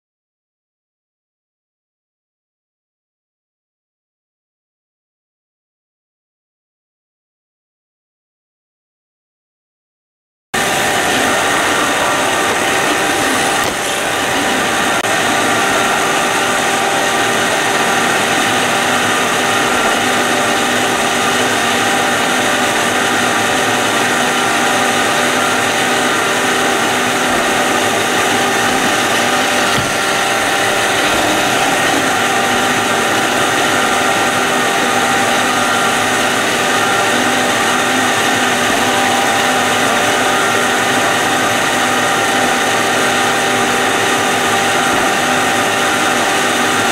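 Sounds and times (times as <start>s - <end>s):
robot vacuum motor whine: 10.6s - 46.9s.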